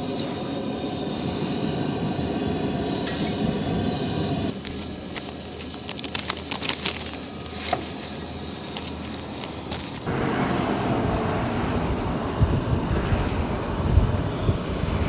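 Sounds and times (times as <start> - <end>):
loud wind noise: 8.7 - 15.0.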